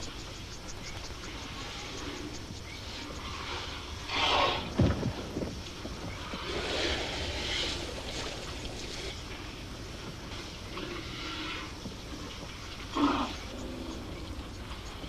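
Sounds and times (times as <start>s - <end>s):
elephants spraying water from trunks: 3.2s - 9.4s.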